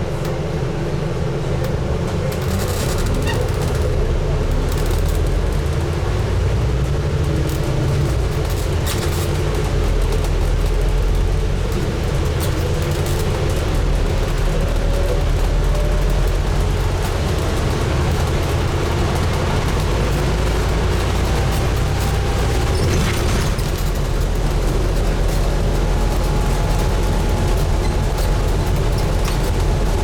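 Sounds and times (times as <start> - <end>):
bus diesel engine rumble: 0.0 - 30.0
bodywork clicks and rattles: 1.7 - 30.0.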